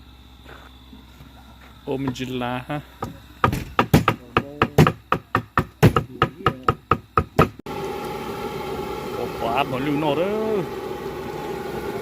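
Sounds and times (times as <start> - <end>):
steady engine hum: 0.0 - 12.0
rapid sharp knocks: 3.4 - 7.6.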